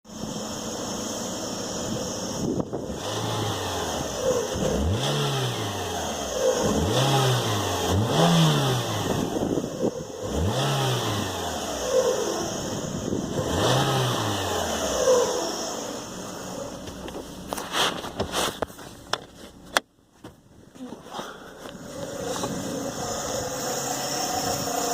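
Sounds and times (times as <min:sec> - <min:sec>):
car engine revving: 0:00.1 - 0:18.8, 0:21.0 - 0:24.9.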